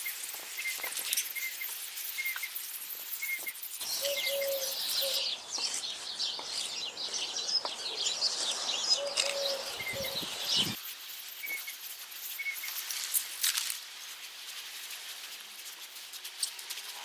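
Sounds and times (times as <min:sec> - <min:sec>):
birds chirping and singing: 0:03.2 - 0:10.8
dove cooing: 0:04.0 - 0:05.3, 0:08.9 - 0:10.8.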